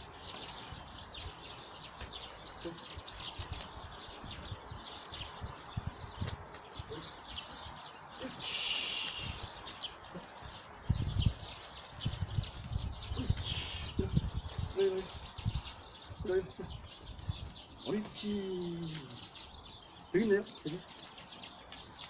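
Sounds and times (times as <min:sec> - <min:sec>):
birds chirping: 0:00.0 - 0:22.0
brief hissing rustle: 0:08.4 - 0:09.5, 0:13.4 - 0:14.0.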